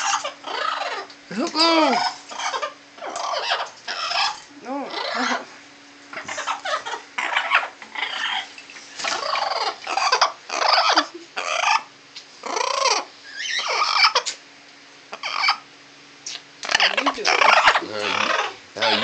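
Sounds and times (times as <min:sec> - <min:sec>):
parrot cackling: 0:00.0 - 0:05.5, 0:06.1 - 0:14.4, 0:15.1 - 0:15.7, 0:16.6 - 0:19.0.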